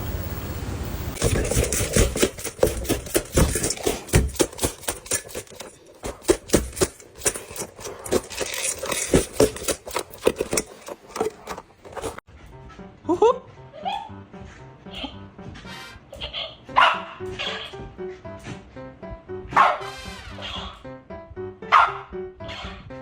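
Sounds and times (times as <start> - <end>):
sharp clicks and knocks: 1.2 - 12.2.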